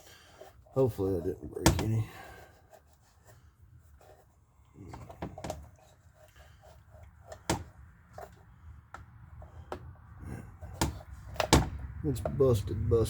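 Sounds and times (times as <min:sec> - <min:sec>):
sharp clicks and knocks: 0:10.7 - 0:12.4.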